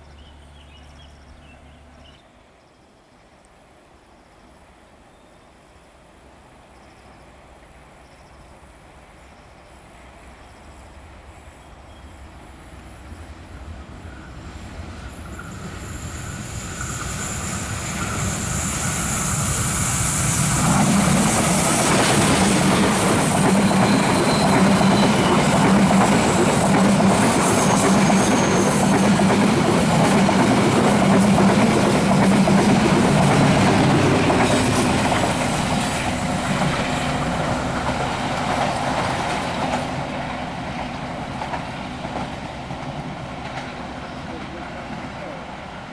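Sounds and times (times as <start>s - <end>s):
train wheels clattering on rails: 14.9s - 45.7s.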